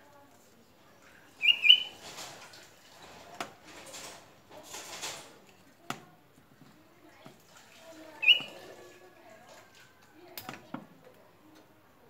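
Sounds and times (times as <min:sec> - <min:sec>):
rustling of leaves being handled: 0:00.0 - 0:10.3
bird chirping: 0:01.4 - 0:02.0, 0:08.2 - 0:08.6.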